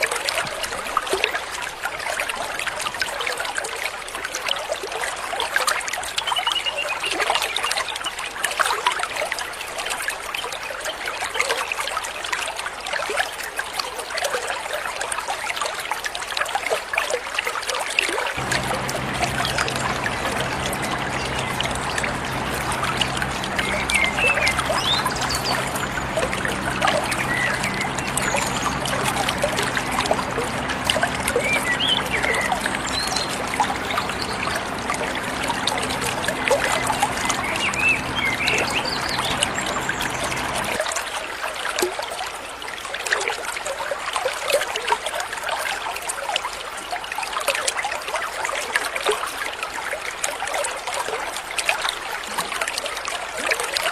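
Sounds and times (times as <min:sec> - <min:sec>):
water trickling: 0:14.8 - 0:48.2
low steady hum: 0:18.4 - 0:40.8
small birds chirping: 0:18.4 - 0:40.8.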